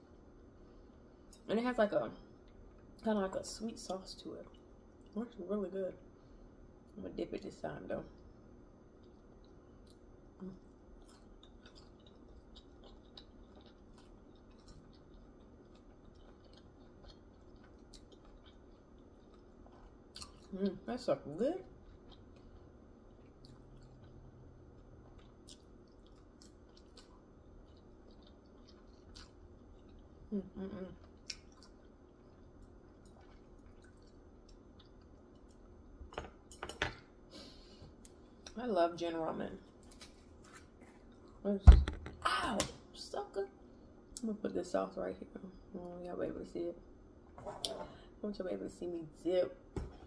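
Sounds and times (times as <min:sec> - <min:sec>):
crisp chewing crunches: 0:10.9 - 0:20.6, 0:21.7 - 0:30.1.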